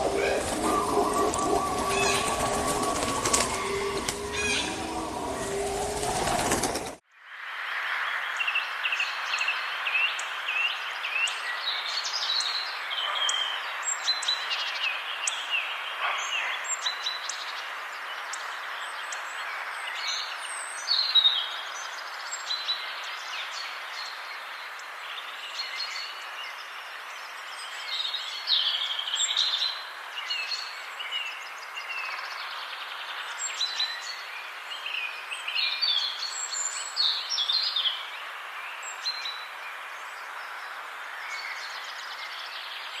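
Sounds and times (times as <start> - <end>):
birds chirping and singing: 0.0 - 7.0.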